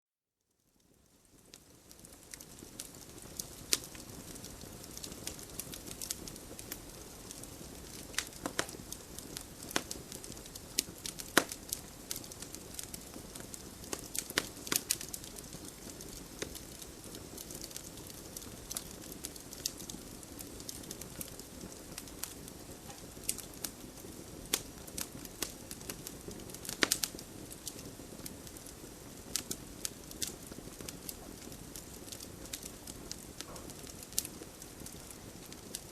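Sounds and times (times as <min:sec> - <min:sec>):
wood fire crackling: 0:00.6 - 0:35.9
sharp pops and snaps: 0:07.8 - 0:15.2, 0:26.6 - 0:27.8.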